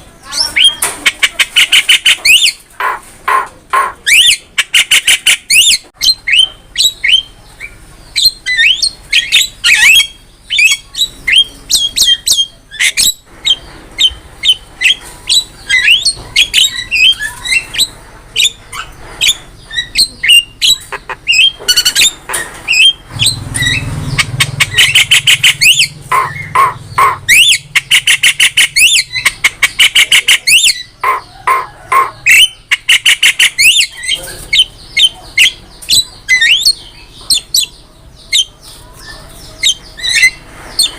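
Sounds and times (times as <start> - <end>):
myna whistles and squawks: 8.2 - 37.7.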